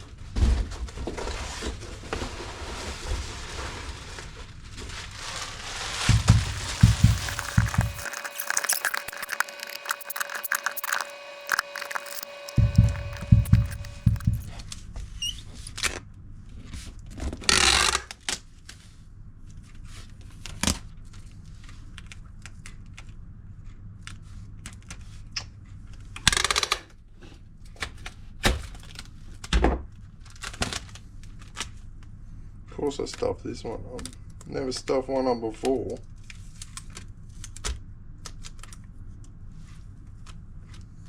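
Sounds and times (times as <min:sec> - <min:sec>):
short noisy bursts: 0:06.1 - 0:14.5
steady low hum: 0:06.1 - 0:14.5.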